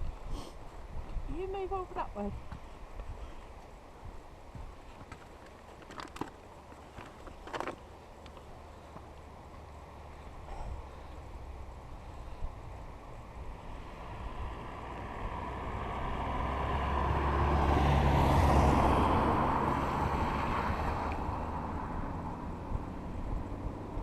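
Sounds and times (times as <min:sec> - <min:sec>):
vehicle driving past: 0:13.2 - 0:24.0.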